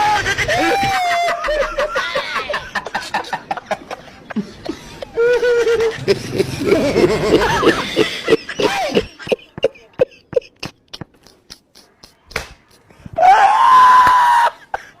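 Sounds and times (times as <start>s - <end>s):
person screaming: 13.2s - 14.6s.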